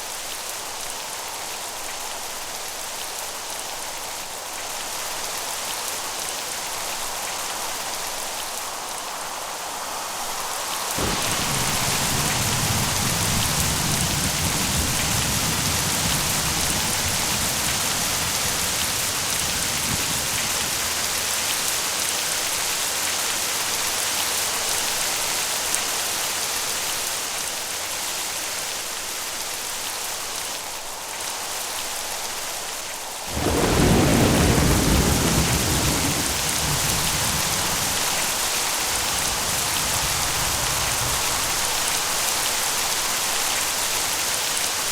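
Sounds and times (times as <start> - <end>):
heavy rain: 0.0 - 44.9
thunder rumbling: 11.0 - 21.7, 33.3 - 42.1.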